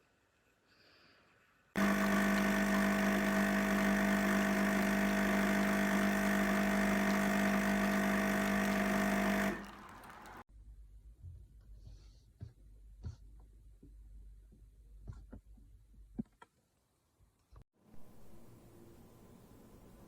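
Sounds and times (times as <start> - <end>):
coffee machine motor hum: 1.8 - 10.5.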